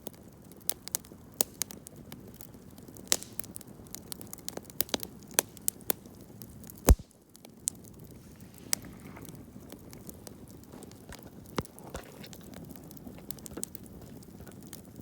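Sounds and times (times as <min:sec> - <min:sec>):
campfire crackling: 0:00.0 - 0:15.0
deep fire pop: 0:06.9 - 0:07.2.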